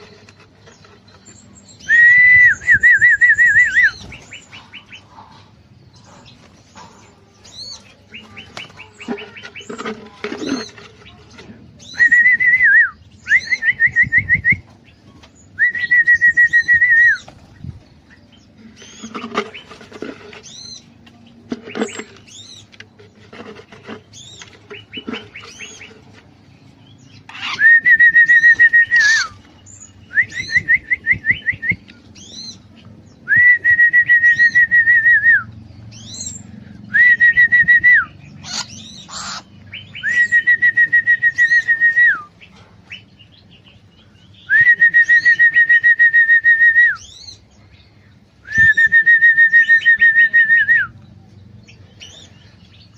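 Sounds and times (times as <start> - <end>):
bulbuls chirping: 0.0 - 52.9
loud whistled phrases: 1.8 - 4.0, 48.4 - 51.0.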